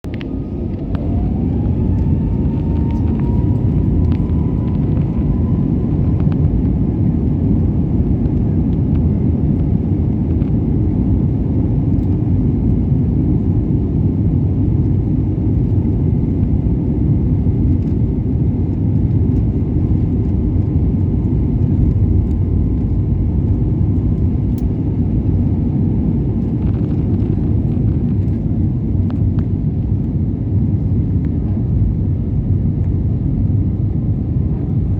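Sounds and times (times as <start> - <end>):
jet engines spooling up: 0.1 - 7.5.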